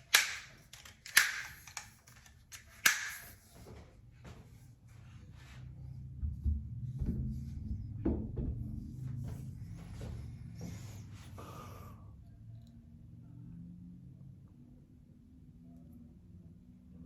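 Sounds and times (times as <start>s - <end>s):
tripod parts knocking and clicking: 0.0s - 3.5s
low rumble: 5.4s - 10.6s.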